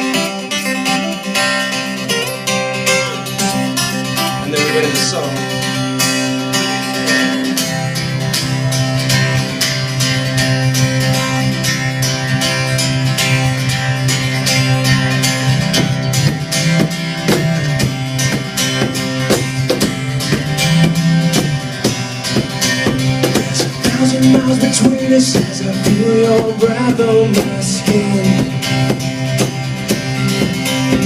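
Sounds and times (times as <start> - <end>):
plucked acoustic guitar riff: 0.0 - 31.0.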